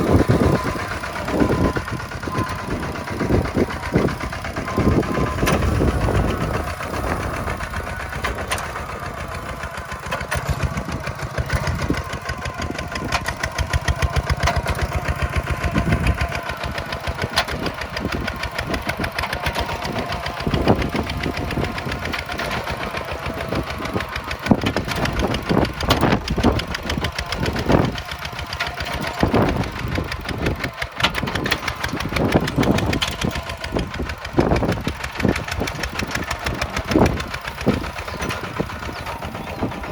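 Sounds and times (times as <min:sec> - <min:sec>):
tractor diesel engine running: 0:00.0 - 0:39.9
clanks and knocks: 0:03.2 - 0:14.8, 0:23.6 - 0:39.9.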